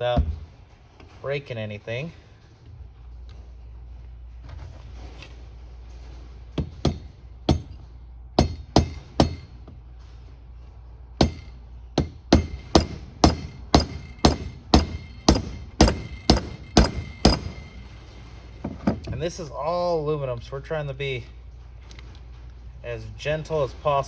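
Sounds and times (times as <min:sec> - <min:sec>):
hammer tapping on metal: 0:06.6 - 0:09.8, 0:11.2 - 0:17.9.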